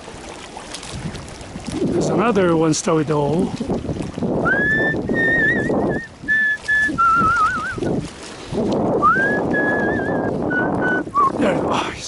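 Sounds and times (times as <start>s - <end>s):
man whistling a tune: 4.4s - 7.8s, 9.0s - 11.4s.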